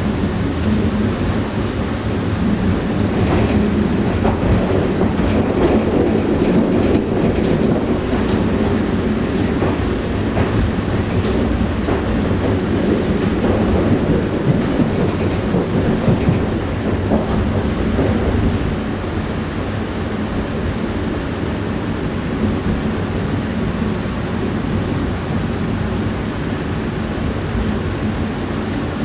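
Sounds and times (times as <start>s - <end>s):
train rolling rumble: 0.0s - 29.0s
wheels knocking over rail joints: 2.4s - 18.9s.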